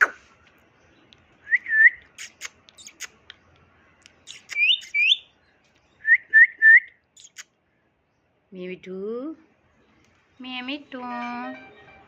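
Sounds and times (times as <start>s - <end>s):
sharp chirps or clicks: 4.0s - 5.1s.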